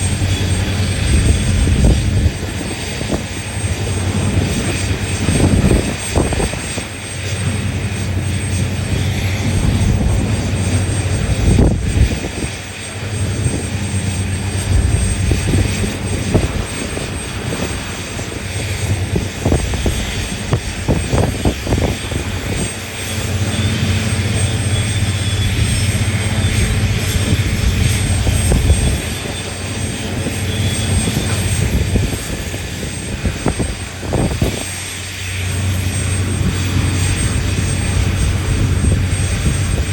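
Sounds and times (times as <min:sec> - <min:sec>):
heavy diesel engines humming: 0:00.0 - 0:39.9.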